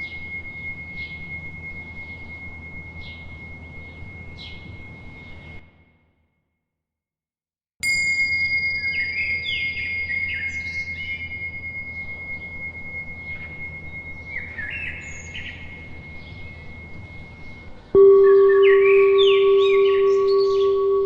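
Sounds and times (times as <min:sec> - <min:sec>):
bell ringing: 0:07.8 - 0:10.2, 0:18.0 - 0:21.0
low ambient background: 0:08.6 - 0:21.0
songbirds chirping: 0:17.4 - 0:21.0.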